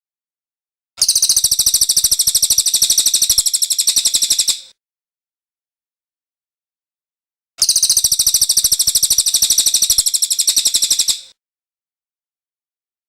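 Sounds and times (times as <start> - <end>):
songbird high rapid trill: 1.0 - 4.7, 7.6 - 11.4.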